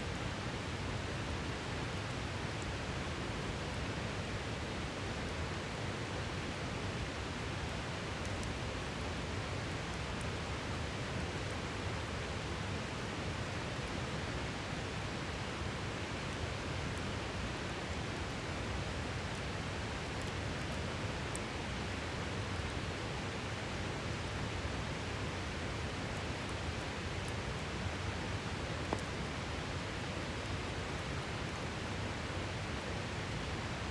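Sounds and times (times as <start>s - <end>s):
campfire crackling: 24.2s - 31.7s.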